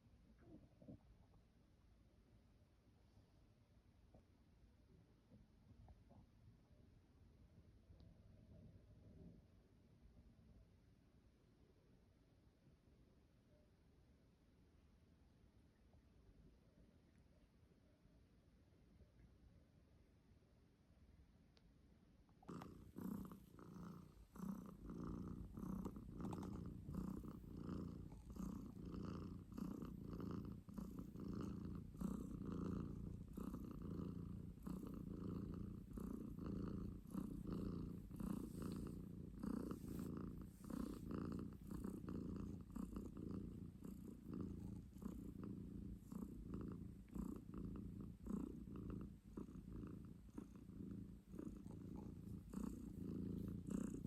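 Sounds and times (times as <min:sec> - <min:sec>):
cat purring: 0:22.4 - 0:54.0.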